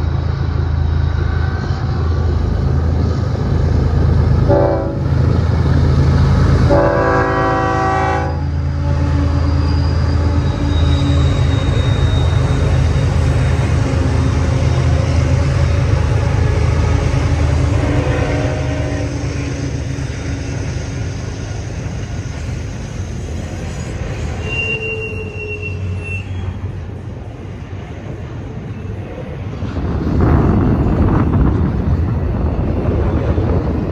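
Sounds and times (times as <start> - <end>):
freight train rumbling past: 0.0 - 33.9
high-pitched wheel squeal: 8.7 - 14.0, 18.6 - 26.9.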